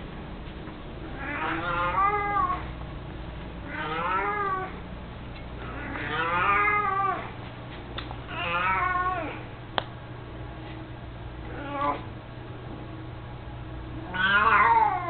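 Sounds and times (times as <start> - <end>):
cat meowing: 1.2 - 2.7, 3.7 - 4.7, 8.3 - 9.4, 14.1 - 15.0.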